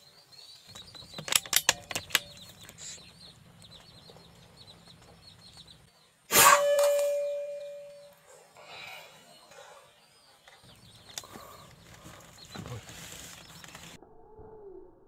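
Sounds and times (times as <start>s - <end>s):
bird chirping: 0.0s - 14.0s
sharp clicks: 0.7s - 5.8s
ringing metallic clang: 6.3s - 8.2s.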